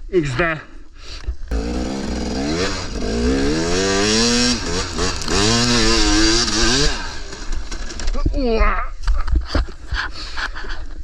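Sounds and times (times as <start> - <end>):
two-stroke dirt bike revving: 1.5 - 8.2.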